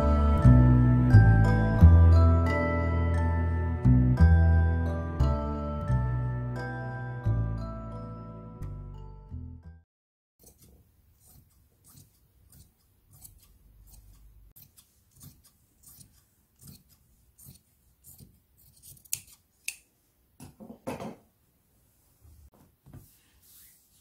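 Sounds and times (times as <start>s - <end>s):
fabric shears snipping: 10.4s - 19.9s.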